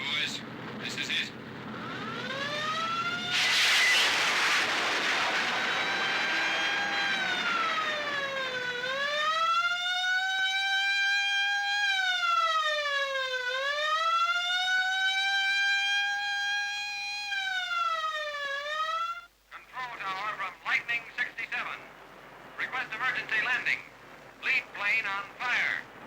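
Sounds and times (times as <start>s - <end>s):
emergency siren wailing: 0.0s - 19.3s
rush of noise: 2.6s - 8.4s.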